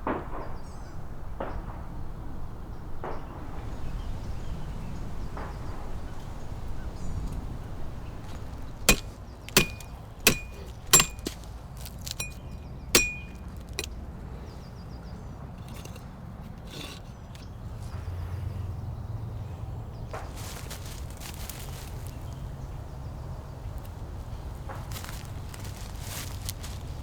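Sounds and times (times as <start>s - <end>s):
metal-on-metal strikes ringing: 8.9s - 11.4s, 12.1s - 13.9s.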